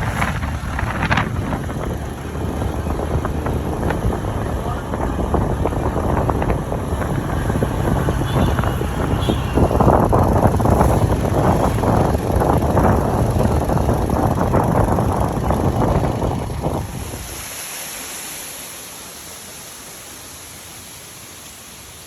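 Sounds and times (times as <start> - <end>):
wind buffeting microphone: 0.0 - 17.5
waterfall rushing: 15.8 - 22.0.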